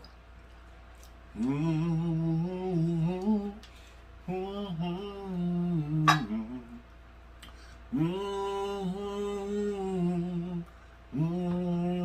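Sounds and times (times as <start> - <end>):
man humming a slow melody: 1.3 - 3.6, 4.3 - 6.8, 7.9 - 12.0.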